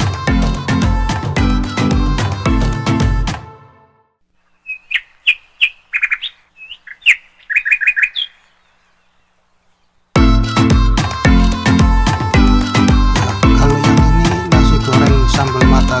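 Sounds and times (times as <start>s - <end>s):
small bird chirping: 4.4s - 10.2s.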